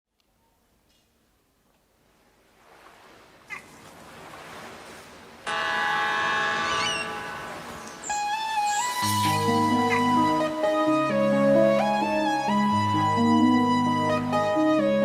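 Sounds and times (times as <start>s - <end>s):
surf: 2.0s - 15.0s
ship's horn blowing: 5.4s - 12.2s
gull cries: 5.5s - 10.5s.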